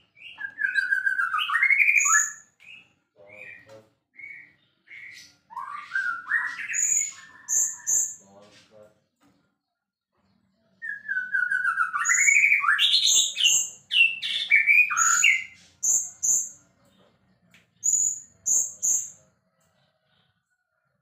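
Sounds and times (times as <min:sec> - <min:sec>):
bird singing whistles: 0:00.2 - 0:08.2, 0:10.8 - 0:16.5.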